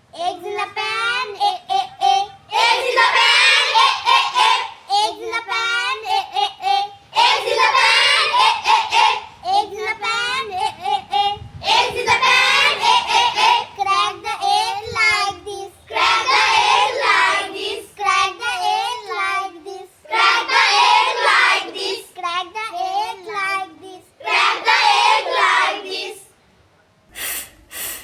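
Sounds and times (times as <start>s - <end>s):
child singing: 0.0s - 26.3s
short sharp sounds: 27.1s - 28.0s.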